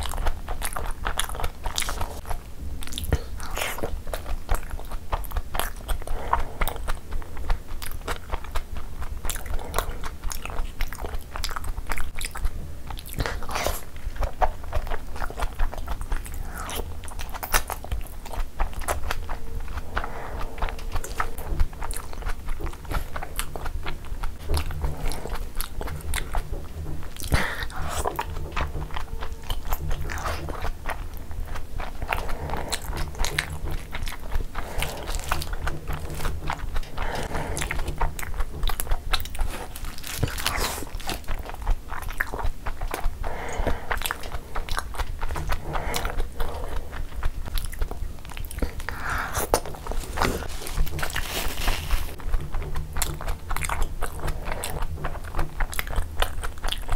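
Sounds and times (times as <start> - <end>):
sticky mouth clicks and smacks: 0.0 - 51.2, 51.8 - 56.9
person chewing: 0.0 - 56.9
steady low hum: 0.0 - 56.9.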